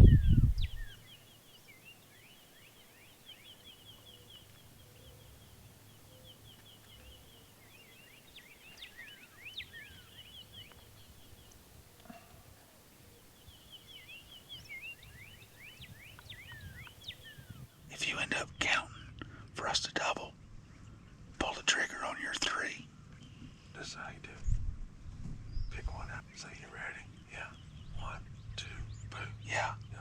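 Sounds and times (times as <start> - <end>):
faint bird trilling: 0.0 - 1.1
downslurred whistled bird notes: 0.0 - 4.2, 13.1 - 17.6.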